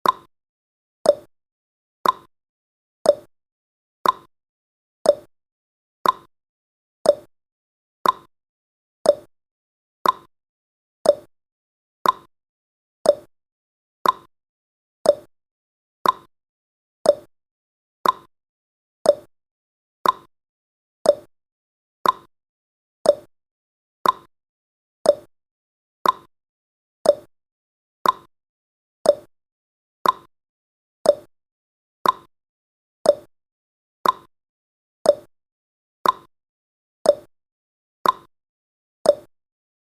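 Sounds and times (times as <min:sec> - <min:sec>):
timer ticking: 0:00.0 - 0:00.3, 0:01.1 - 0:01.3, 0:02.0 - 0:02.3, 0:03.1 - 0:03.3, 0:04.0 - 0:04.3, 0:05.1 - 0:05.3, 0:06.0 - 0:06.3, 0:07.0 - 0:07.3, 0:08.0 - 0:08.3, 0:09.0 - 0:09.3, 0:10.0 - 0:10.3, 0:11.0 - 0:11.3, 0:12.0 - 0:12.3, 0:13.0 - 0:13.3, 0:14.0 - 0:14.3, 0:15.0 - 0:15.3, 0:16.0 - 0:16.3, 0:17.0 - 0:17.3, 0:18.0 - 0:18.3, 0:19.0 - 0:19.3, 0:20.0 - 0:20.3, 0:21.0 - 0:21.3, 0:22.0 - 0:22.3, 0:23.0 - 0:23.3, 0:24.0 - 0:24.3, 0:25.0 - 0:25.3, 0:26.0 - 0:26.3, 0:27.0 - 0:27.3, 0:28.0 - 0:28.3, 0:29.0 - 0:29.3, 0:30.0 - 0:30.3, 0:31.0 - 0:31.3, 0:32.0 - 0:32.3, 0:33.0 - 0:33.3, 0:34.0 - 0:34.3, 0:35.1 - 0:35.3, 0:36.0 - 0:36.3, 0:37.1 - 0:37.3, 0:38.0 - 0:38.3, 0:39.1 - 0:39.3.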